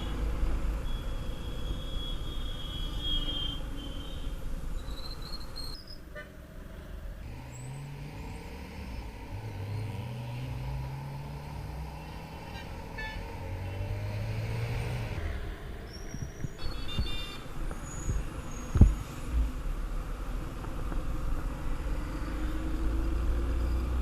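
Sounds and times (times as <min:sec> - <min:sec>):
car horn toots: 0:16.7 - 0:17.5.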